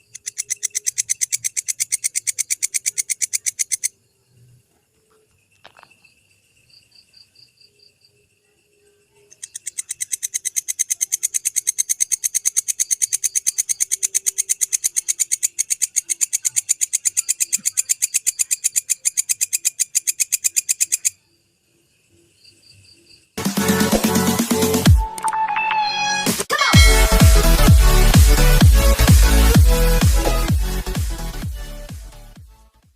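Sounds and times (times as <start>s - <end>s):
bush cricket stridulating: 0.0s - 23.4s.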